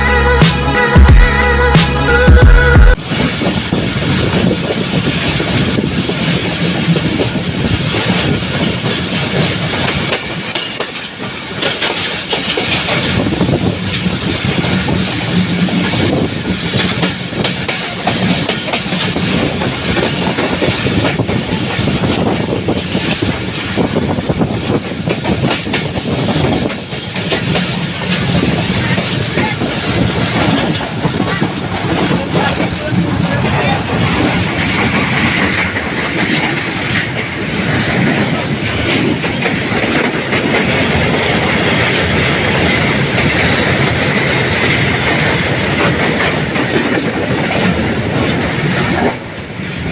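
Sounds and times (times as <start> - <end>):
train rattling over rails: 0.0 - 49.9.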